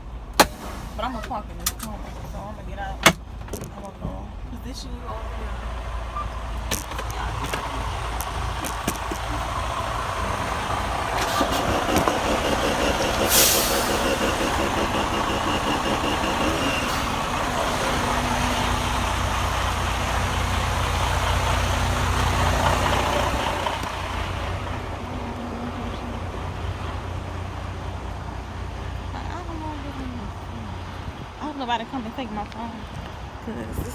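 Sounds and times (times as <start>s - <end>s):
diesel truck engine running: 0.0s - 33.9s
air brake hiss: 0.4s - 1.2s, 13.2s - 14.3s.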